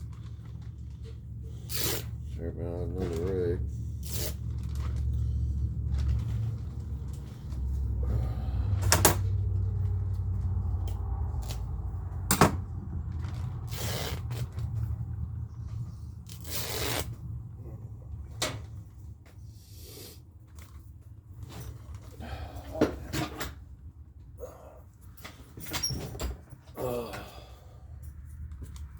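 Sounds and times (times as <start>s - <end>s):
scraping rustles: 0.0s - 8.0s.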